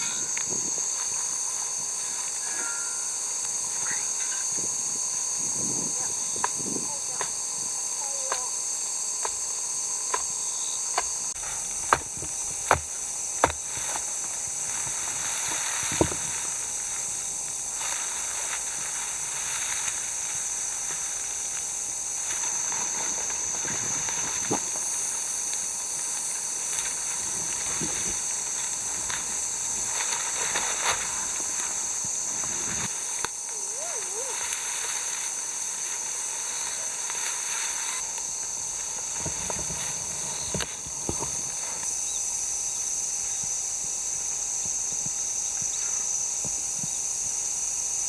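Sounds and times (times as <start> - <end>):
high-pitched hiss: 0.0 - 48.0
sharp knocks: 11.0 - 14.2.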